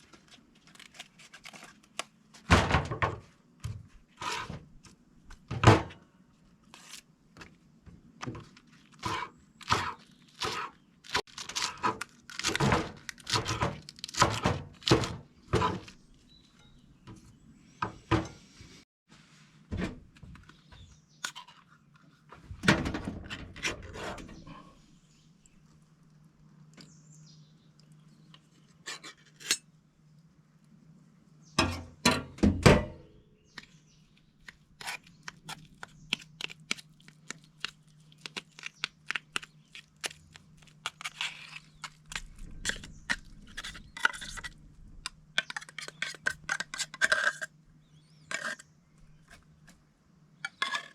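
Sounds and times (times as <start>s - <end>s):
objects knocking and thunking: 2.4s - 4.7s, 5.3s - 6.0s, 16.7s - 18.5s, 19.7s - 20.9s, 22.3s - 24.6s.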